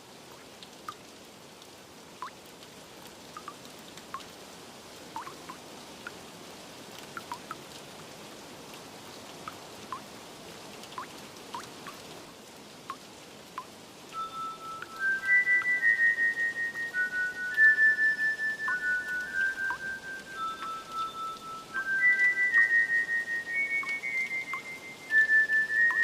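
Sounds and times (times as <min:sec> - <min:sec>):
rain hiss: 0:00.0 - 0:26.0
water drops plinking: 0:03.4 - 0:03.6, 0:05.2 - 0:05.6, 0:07.2 - 0:07.6, 0:13.6 - 0:26.0.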